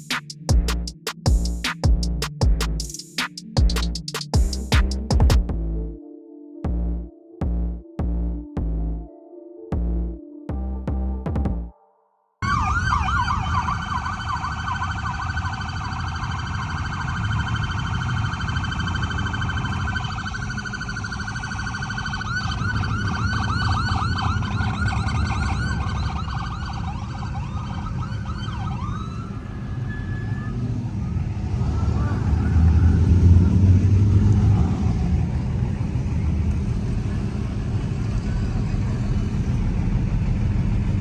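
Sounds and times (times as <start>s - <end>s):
police sirens wailing: 12.4s - 41.0s
low rumble: 31.3s - 41.0s.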